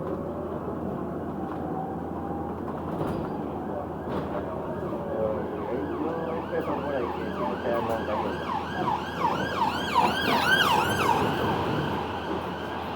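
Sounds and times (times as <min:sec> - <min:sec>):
emergency siren yelping: 0:03.4 - 0:12.9.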